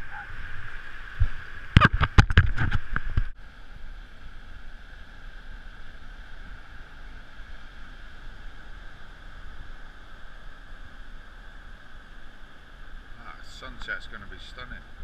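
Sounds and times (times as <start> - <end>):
wind and surf hiss: 0.0 - 15.0.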